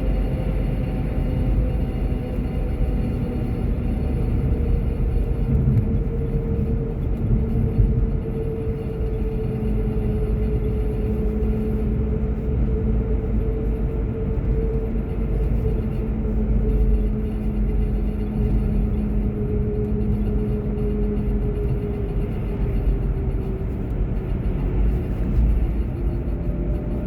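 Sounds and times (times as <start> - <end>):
car driving road rumble: 0.0 - 27.0.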